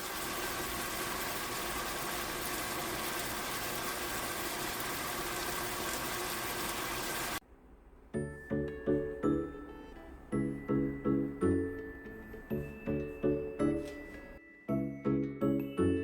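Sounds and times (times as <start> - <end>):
rushing watery noise: 0.0 - 7.4.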